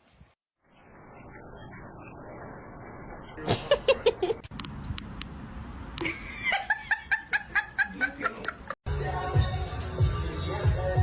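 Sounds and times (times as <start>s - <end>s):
person laughing in rapid bursts: 3.4s - 4.4s, 6.0s - 8.8s.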